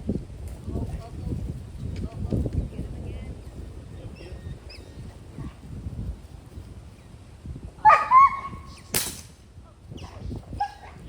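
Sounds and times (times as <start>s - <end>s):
dog barking: 7.8s - 8.5s
sharp crack: 8.8s - 9.4s.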